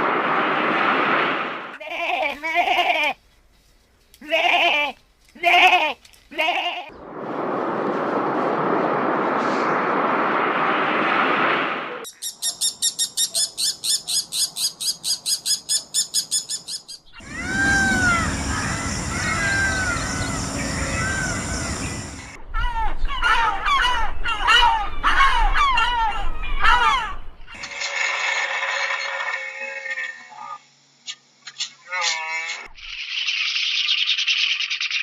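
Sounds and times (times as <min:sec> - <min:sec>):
goat or sheep bleating: 0:01.8 - 0:03.2, 0:04.2 - 0:06.9
steady rushing noise: 0:06.9 - 0:12.0, 0:17.2 - 0:22.9
high chirp-like pulses: 0:16.5 - 0:22.5.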